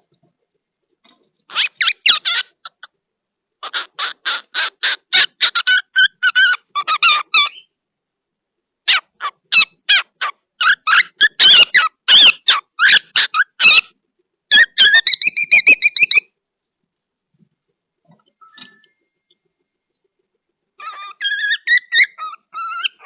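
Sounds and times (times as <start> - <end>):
cockatiel chirping: 1.5 - 3.0, 3.6 - 7.8, 8.9 - 16.4, 20.8 - 23.0.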